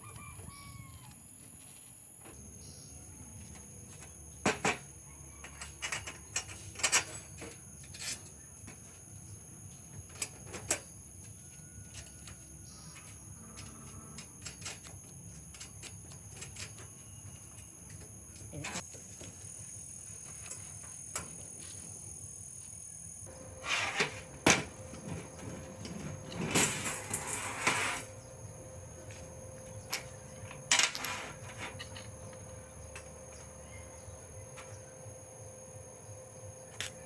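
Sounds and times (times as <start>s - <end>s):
faint steady hum: 0.0s - 37.0s
scraping rustle: 23.6s - 28.2s, 30.8s - 32.1s.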